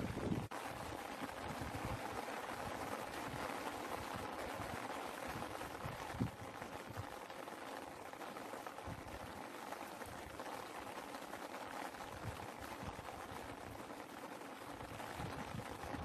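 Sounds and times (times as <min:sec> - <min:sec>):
raindrops soft low knocks: 0:00.0 - 0:16.0
steady rain: 0:00.0 - 0:16.0.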